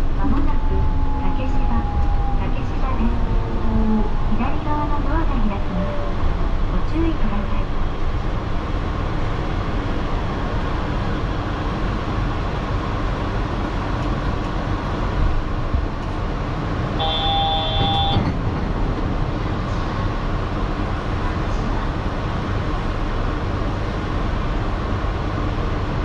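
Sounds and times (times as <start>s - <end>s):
train running and stopping: 0.0s - 26.0s
short electronic tone: 17.0s - 18.2s.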